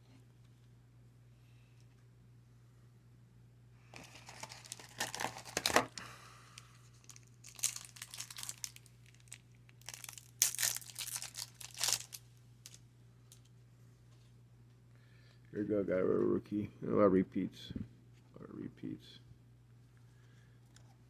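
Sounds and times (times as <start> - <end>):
wrapper tearing and crinkling: 4.0 - 6.0, 7.0 - 12.2.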